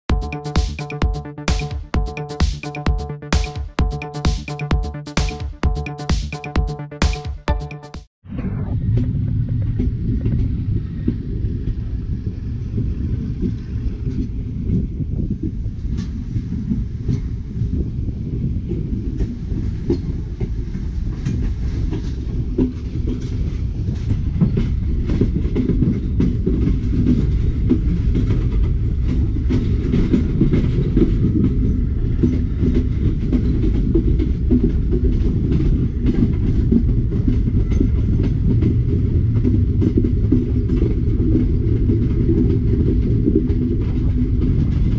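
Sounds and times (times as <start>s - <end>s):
track clicks and knocks: 0.1s - 8.1s
train wheels rumbling on rails: 8.8s - 44.9s.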